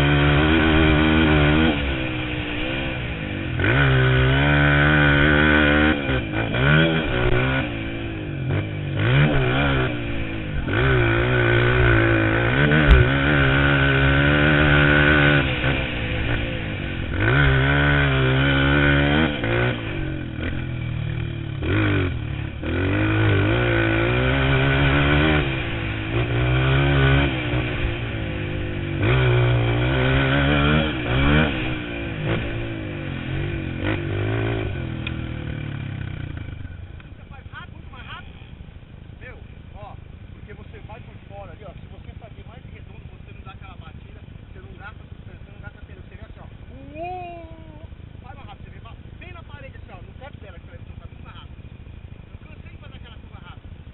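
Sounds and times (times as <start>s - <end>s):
motocross bike engine revving: 0.0s - 38.8s.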